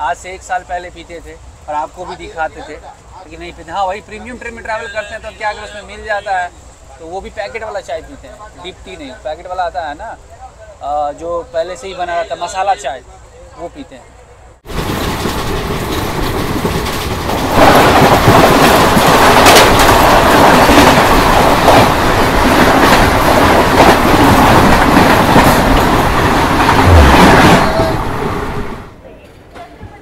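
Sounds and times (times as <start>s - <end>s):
train running at speed: 0.0s - 30.0s
wheels clattering over rail joints: 14.6s - 30.0s.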